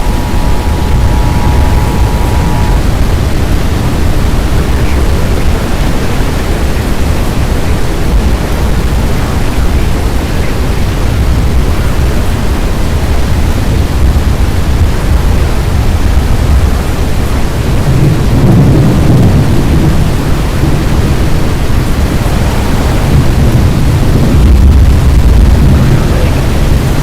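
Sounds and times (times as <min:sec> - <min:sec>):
loud low rumbling: 0:00.0 - 0:09.2, 0:17.6 - 0:27.0.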